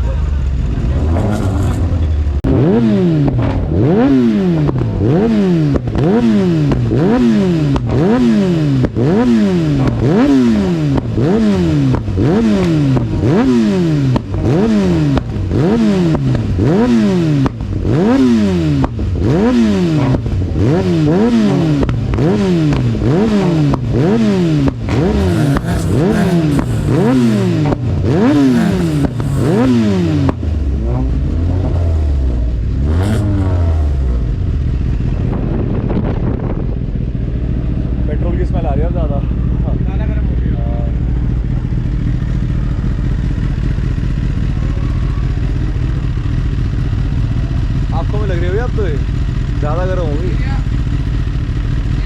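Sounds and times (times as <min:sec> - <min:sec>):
motorcycle engine revving: 0:00.0 - 0:52.0
exhaust backfires crackling: 0:00.1 - 0:03.8, 0:24.7 - 0:30.6.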